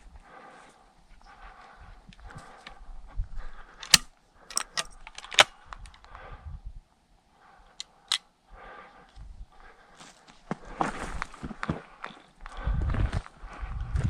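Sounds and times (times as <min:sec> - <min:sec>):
footsteps on loose rocky ground: 0:09.9 - 0:14.0.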